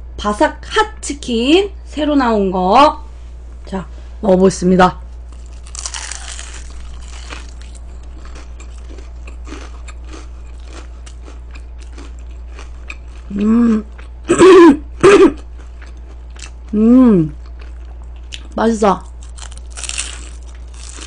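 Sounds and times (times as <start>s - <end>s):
fried chicken crunching: 5.3s - 14.2s, 19.1s - 21.0s
person humming: 13.3s - 15.4s, 16.7s - 17.4s.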